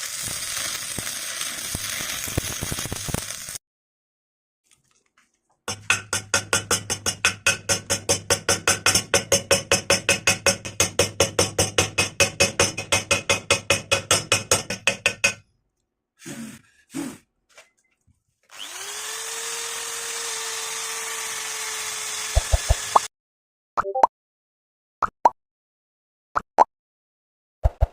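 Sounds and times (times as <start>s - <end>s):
power tool pulsing: 18.5s - 23.1s.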